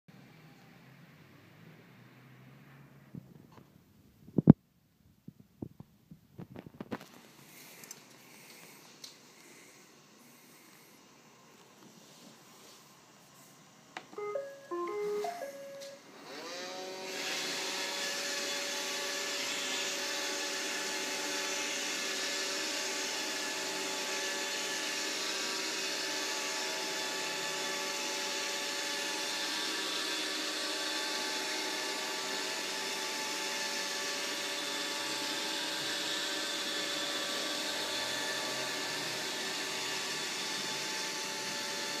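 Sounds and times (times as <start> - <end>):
short electronic tones: 14.2 - 16.0
vacuum cleaner motor whining: 15.7 - 42.0.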